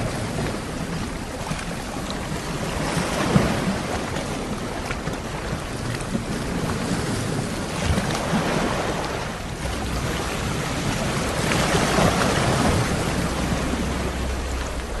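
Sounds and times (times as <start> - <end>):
sea waves washing onto shore: 0.0 - 15.0
low rumble: 9.5 - 15.0.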